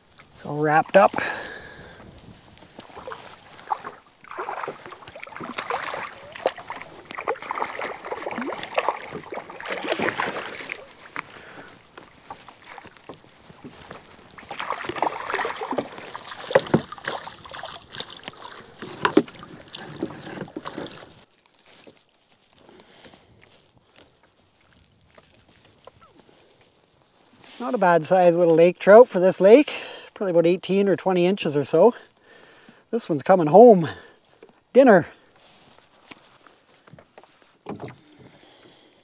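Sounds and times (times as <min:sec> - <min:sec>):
water splashing and sloshing: 0:00.0 - 0:28.0, 0:35.4 - 0:39.0
knocks against canoe hull: 0:15.8 - 0:17.2, 0:18.8 - 0:20.9.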